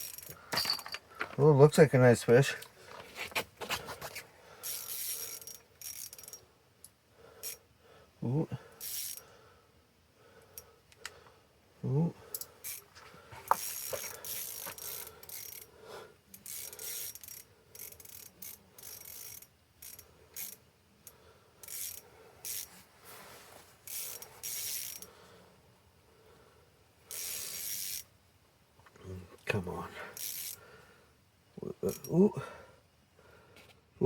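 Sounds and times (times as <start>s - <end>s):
fishing reel whirring and clicking: 0.0s - 0.4s, 4.6s - 6.4s, 7.4s - 7.6s, 8.8s - 9.3s, 12.3s - 12.9s, 13.5s - 15.7s, 16.3s - 20.6s, 21.6s - 22.8s, 23.8s - 25.1s, 27.1s - 28.1s, 30.2s - 30.6s.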